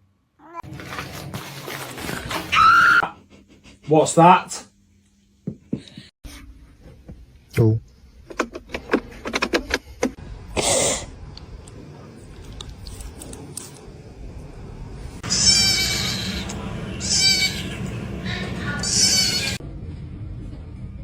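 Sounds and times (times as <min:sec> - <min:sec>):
loud drawn-out animal cry: 0:15.2 - 0:19.6.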